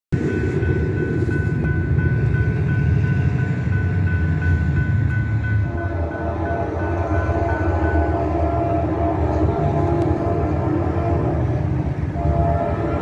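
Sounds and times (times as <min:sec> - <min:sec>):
freight train diesel rumble: 0:00.1 - 0:13.0
crossing warning bell ringing: 0:00.2 - 0:13.0
locomotive air horn: 0:05.6 - 0:13.0.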